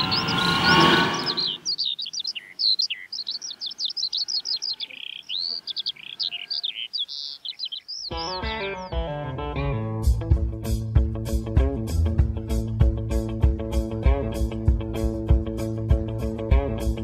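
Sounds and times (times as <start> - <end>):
loud rushing whoosh: 0.0 - 1.6
songbirds chirping and trilling: 0.0 - 9.3.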